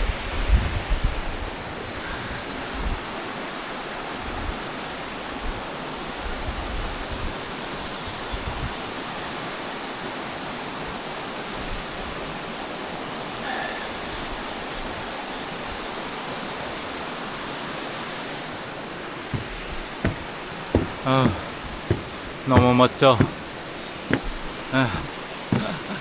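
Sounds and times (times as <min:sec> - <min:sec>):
stream water rushing: 0:01.3 - 0:26.0.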